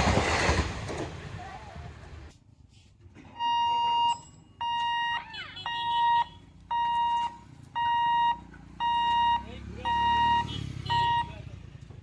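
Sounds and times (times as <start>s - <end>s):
level crossing warning beeps: 3.4s - 11.4s.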